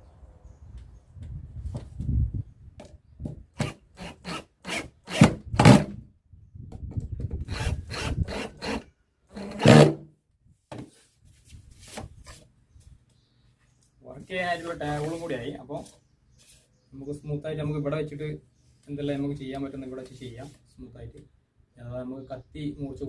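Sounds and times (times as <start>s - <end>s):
scraping and knocking on wood: 9.4s - 10.0s.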